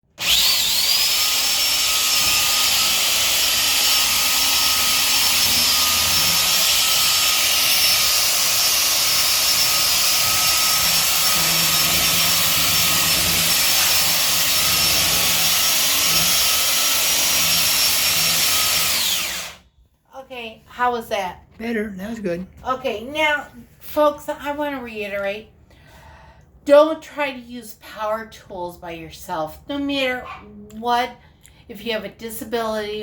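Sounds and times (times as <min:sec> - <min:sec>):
electric belt sander whining: 0:00.2 - 0:19.6.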